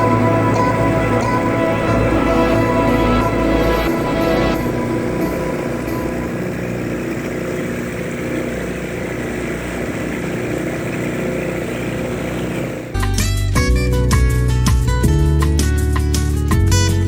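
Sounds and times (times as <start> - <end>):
boat motor running: 0.0 - 13.3.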